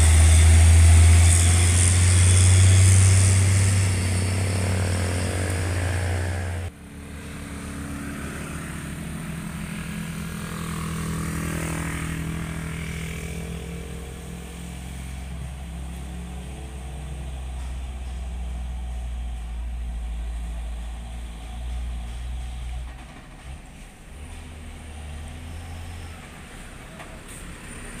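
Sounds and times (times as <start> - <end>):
vehicle passing: 0.0 - 20.9
truck diesel engine droning: 0.0 - 28.0.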